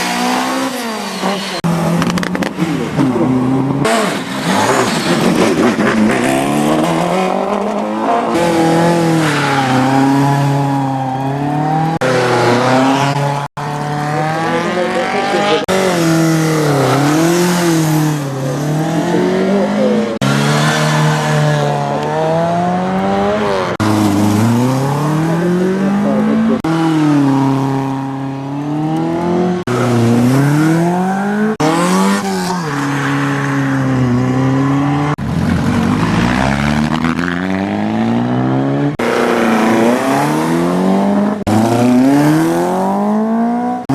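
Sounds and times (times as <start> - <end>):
car engines revving hard: 0.0 - 43.9.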